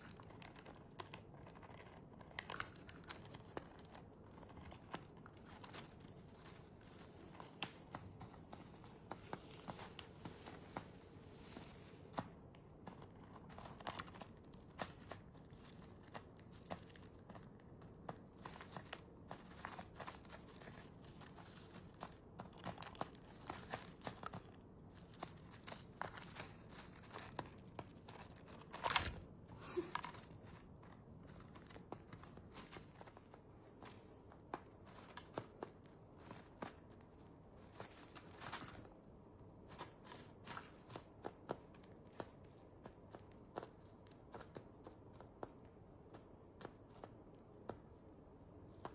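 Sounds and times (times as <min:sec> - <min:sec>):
parrots cracking seeds: 0:00.0 - 0:10.8, 0:12.0 - 0:39.0.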